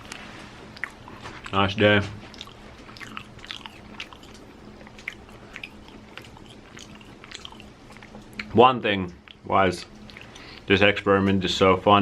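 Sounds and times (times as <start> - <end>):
person chewing: 0.0 - 8.6, 9.2 - 10.7.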